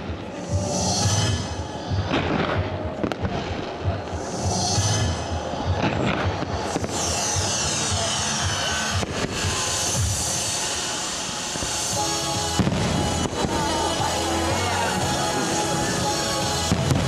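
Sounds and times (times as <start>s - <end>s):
fireworks bangs: 0.0s - 17.0s
fireworks crackle: 0.0s - 17.0s
music playing: 0.0s - 17.0s.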